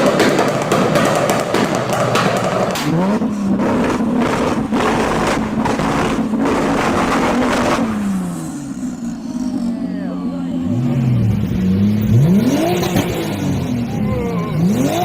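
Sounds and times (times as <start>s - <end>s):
exhaust pops and crackles: 0.0s - 9.7s
supercar engine revving: 0.0s - 15.0s.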